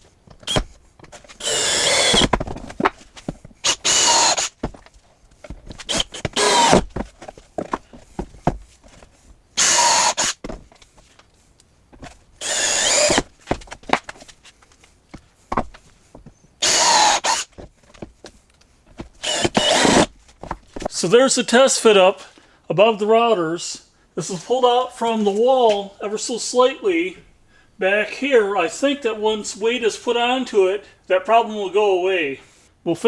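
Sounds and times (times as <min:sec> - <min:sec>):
handling knocks and clatter: 0:00.0 - 0:01.4, 0:02.0 - 0:09.5, 0:10.4 - 0:12.4, 0:13.1 - 0:16.4, 0:17.5 - 0:21.0
cordless drill driving screws: 0:00.4 - 0:02.4, 0:03.6 - 0:04.7, 0:05.8 - 0:07.0, 0:09.6 - 0:10.5, 0:12.4 - 0:13.5, 0:16.6 - 0:17.6, 0:19.2 - 0:20.1.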